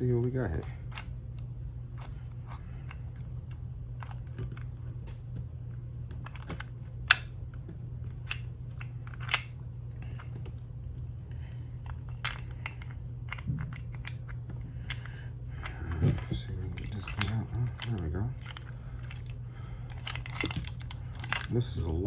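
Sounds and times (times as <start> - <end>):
small metal parts clicking: 8.0 - 21.6.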